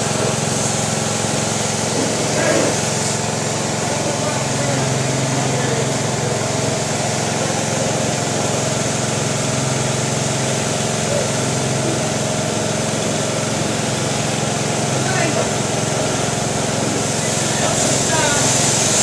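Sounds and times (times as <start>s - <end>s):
car wash motor drone: 0.0s - 19.0s
broad hiss: 16.9s - 19.0s.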